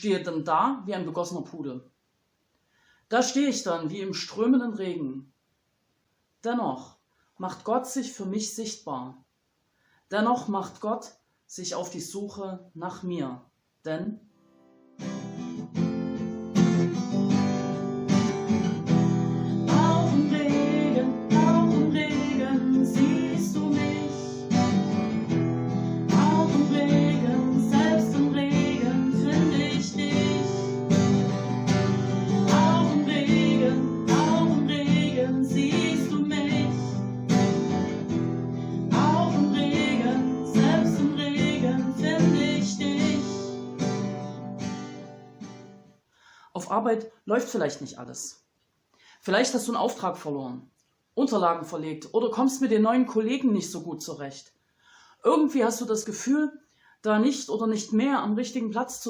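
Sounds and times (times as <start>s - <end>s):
acoustic guitar strumming chords: 14.4s - 45.9s.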